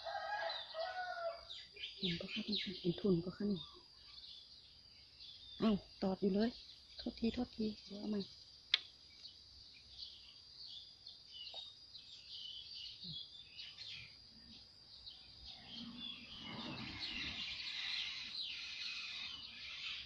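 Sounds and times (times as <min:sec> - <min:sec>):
faint outdoor background noise: 0:00.0 - 0:20.0
small birds chirping: 0:00.1 - 0:20.0.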